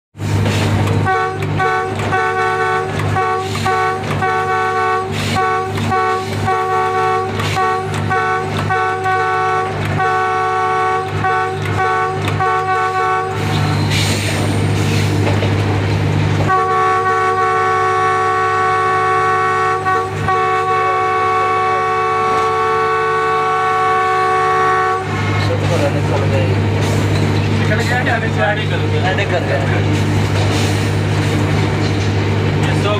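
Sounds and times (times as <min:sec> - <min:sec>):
rail noise: 0:00.1 - 0:32.9
locomotive engine drone: 0:00.2 - 0:32.9
locomotive horn toots: 0:01.0 - 0:14.2, 0:16.4 - 0:26.2.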